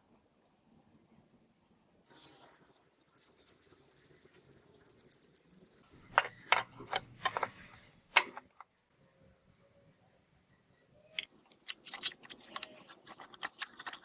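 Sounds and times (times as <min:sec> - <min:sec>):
small parts scratching and ticking: 0:02.3 - 0:06.3, 0:11.2 - 0:14.0
sharp clicks: 0:11.2 - 0:14.0.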